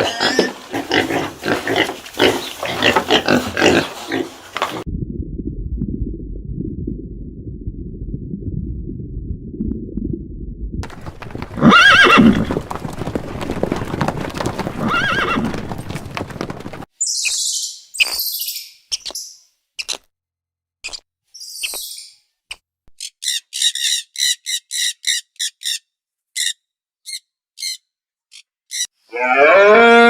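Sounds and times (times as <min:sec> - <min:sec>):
muffled hoof clopping: 0:10.8 - 0:16.9
horse whinnying: 0:11.4 - 0:12.8, 0:13.8 - 0:16.0, 0:29.1 - 0:30.0.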